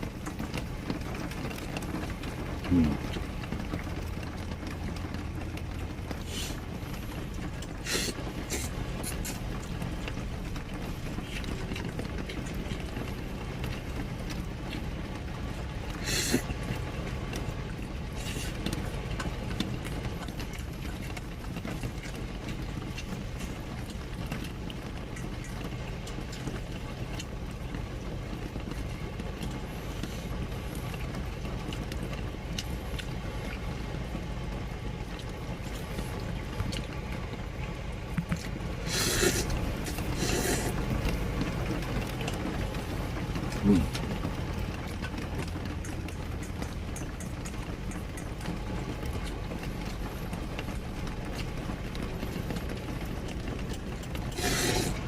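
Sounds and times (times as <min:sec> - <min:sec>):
rain on camper: 0:00.0 - 0:55.0
wind: 0:00.0 - 0:55.0.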